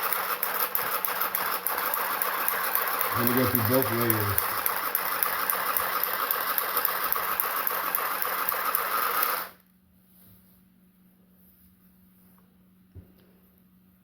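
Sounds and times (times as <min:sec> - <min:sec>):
handheld sewing machine stitching: 0:00.0 - 0:09.6.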